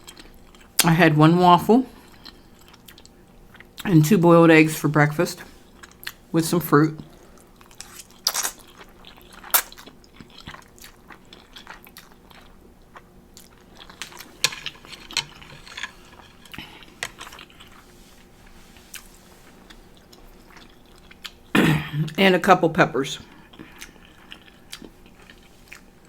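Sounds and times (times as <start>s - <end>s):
person chewing: 0.0s - 0.8s, 1.9s - 3.9s, 5.4s - 6.3s, 7.0s - 22.2s, 23.2s - 26.0s
crunchy bites: 7.8s - 11.7s.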